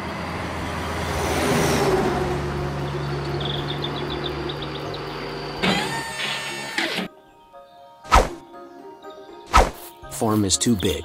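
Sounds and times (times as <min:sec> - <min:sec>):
truck engine running: 0:02.2 - 0:06.1
sharp thump: 0:08.1 - 0:08.4, 0:09.6 - 0:09.9.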